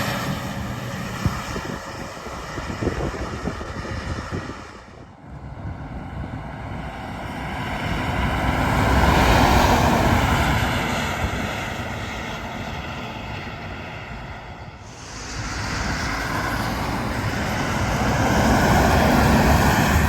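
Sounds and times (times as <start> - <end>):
heavy truck driving past: 0.0 - 6.7, 14.8 - 20.0.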